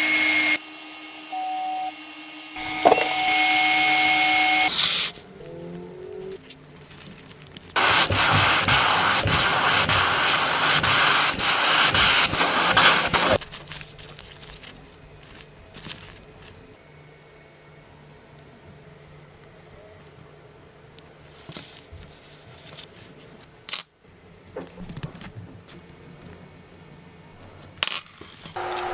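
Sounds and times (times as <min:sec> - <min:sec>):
pressurised spray hissing: 0:02.6 - 0:05.3, 0:07.8 - 0:13.4.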